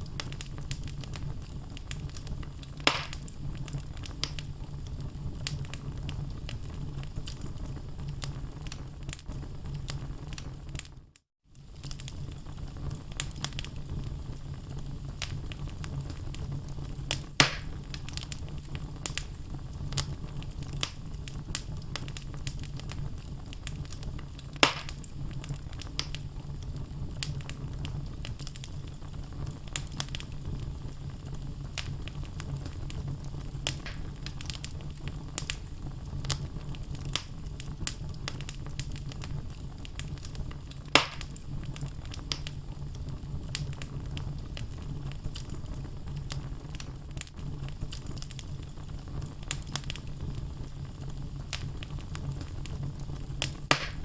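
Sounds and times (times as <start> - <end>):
logs crackling: 0.0 - 4.5, 17.0 - 28.9, 31.7 - 42.6, 51.5 - 54.0
fire burning in fireplace: 0.0 - 54.0
loud wood pops: 2.8 - 3.2, 17.4 - 17.8, 24.6 - 25.0, 33.7 - 34.1, 41.0 - 41.3, 53.7 - 54.0.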